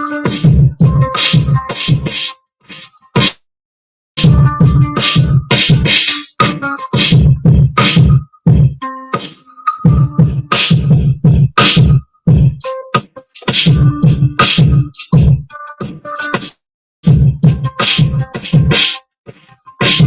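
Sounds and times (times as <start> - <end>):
hip-hop beat: 0.0 - 3.4, 4.2 - 20.0
kick drum and snare hits: 4.2 - 8.8, 9.9 - 12.6, 13.5 - 15.4, 16.4 - 18.9.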